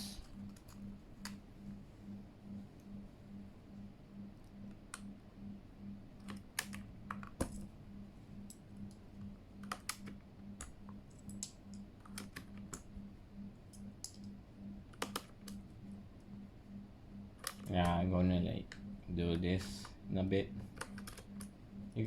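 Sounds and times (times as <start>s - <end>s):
mechanical keyboard typing clacks: 9.6s - 12.8s, 14.9s - 15.6s, 20.7s - 21.5s.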